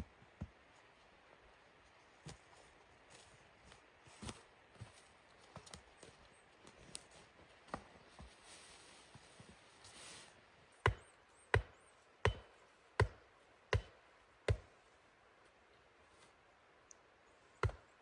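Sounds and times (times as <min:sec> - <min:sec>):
wood being chopped: 0:10.8 - 0:14.7, 0:17.6 - 0:17.9.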